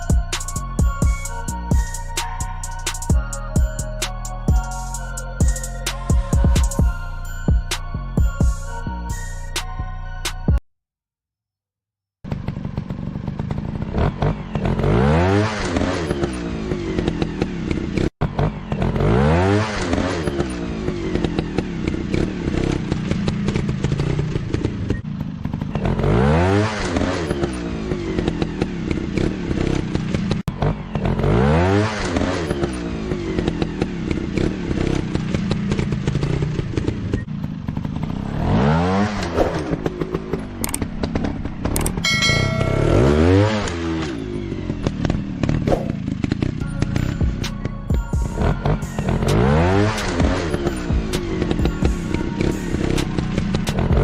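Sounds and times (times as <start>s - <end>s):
dirt bike engine revving: 12.3s - 54.0s.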